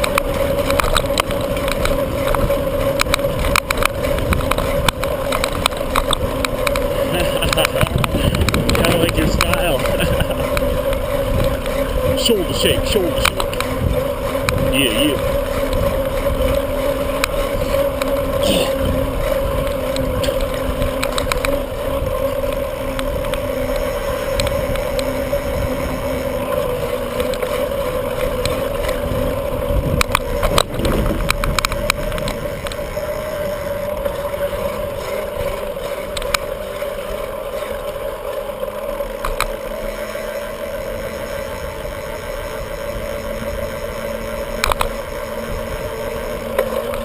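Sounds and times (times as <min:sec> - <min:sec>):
wind on microphone: 0:00.0 - 0:27.2, 0:28.4 - 0:35.7
bicycle rattles: 0:00.0 - 0:47.0
bicycle riding rumble on road: 0:00.0 - 0:47.0
steady drone: 0:00.0 - 0:47.0.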